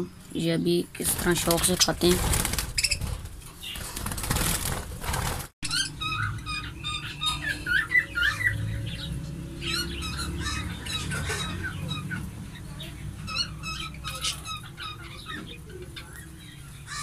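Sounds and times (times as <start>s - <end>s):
parrots chattering: 5.6s - 17.0s.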